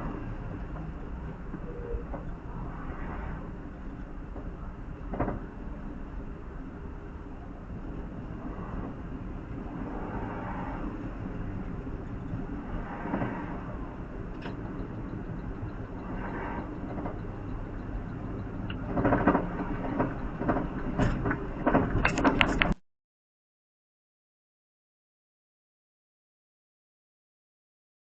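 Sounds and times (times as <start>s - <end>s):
road and engine noise in car: 0.0s - 22.8s
sharp knocks and clatters: 14.4s - 22.8s.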